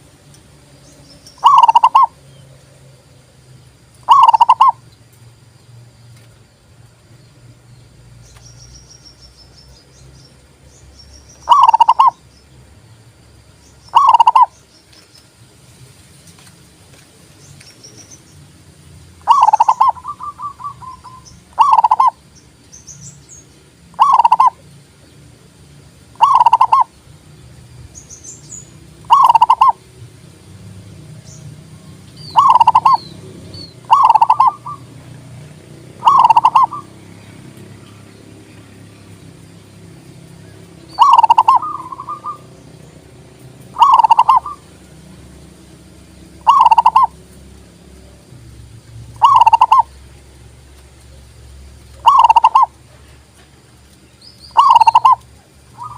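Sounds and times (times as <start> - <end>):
dove cooing: 1.4 - 2.2, 4.0 - 4.8, 11.5 - 12.2, 13.9 - 14.5, 19.2 - 22.2, 23.9 - 24.6, 26.1 - 26.9, 29.0 - 29.8, 32.3 - 37.8, 41.0 - 42.6, 43.6 - 44.8, 46.4 - 47.3, 49.2 - 50.0, 52.0 - 53.1, 54.6 - 55.9.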